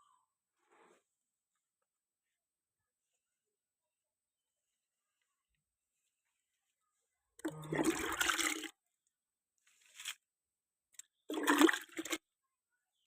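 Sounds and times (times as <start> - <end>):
water pouring and splashing: 7.4 - 8.7, 11.3 - 12.2.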